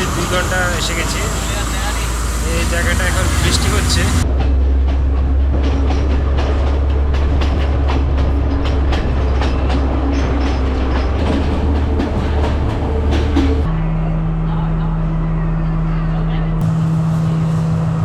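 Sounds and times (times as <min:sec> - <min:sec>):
train wheels clattering over rail joints: 0:00.0 - 0:13.7
train low rumble: 0:00.0 - 0:18.0.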